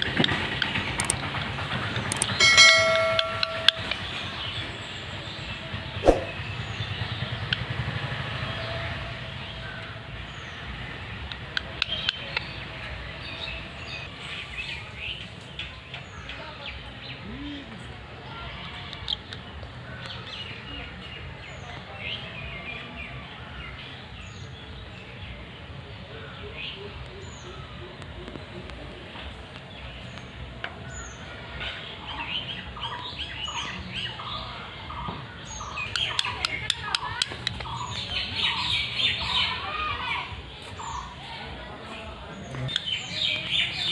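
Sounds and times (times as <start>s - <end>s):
sharp clicks: 0.2s - 1.2s, 2.0s - 2.4s.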